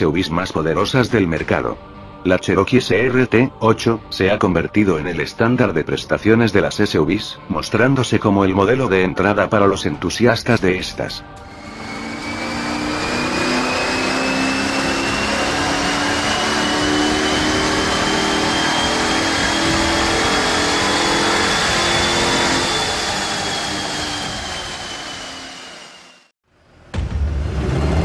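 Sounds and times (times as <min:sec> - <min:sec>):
engine running hard on dynamometer: 0:11.4 - 0:26.3
high whine rising in pitch: 0:11.4 - 0:26.3.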